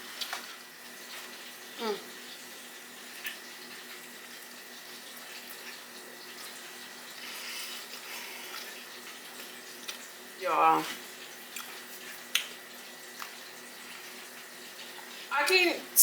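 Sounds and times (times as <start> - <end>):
wet chewing: 11.5 - 14.1.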